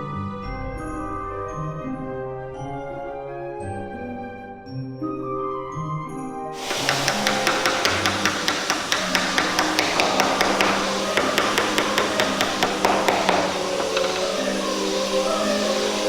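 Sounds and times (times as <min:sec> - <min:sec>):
background music: 0:00.0 - 0:16.0
rapid hammer strikes: 0:06.6 - 0:16.0
steady hiss: 0:06.6 - 0:16.0.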